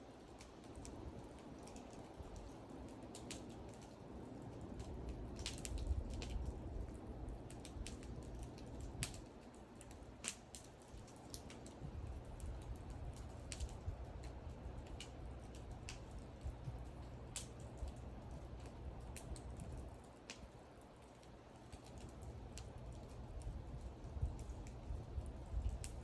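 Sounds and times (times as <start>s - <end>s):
low steady rumble: 0.0s - 26.0s
wood fire crackling: 0.0s - 26.0s.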